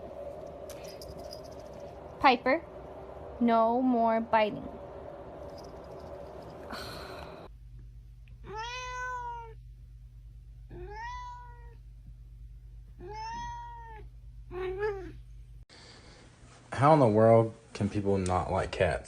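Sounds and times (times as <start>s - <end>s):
low steady hum: 0.0s - 19.0s
cat meowing: 8.4s - 9.6s, 10.7s - 11.8s, 13.0s - 15.2s.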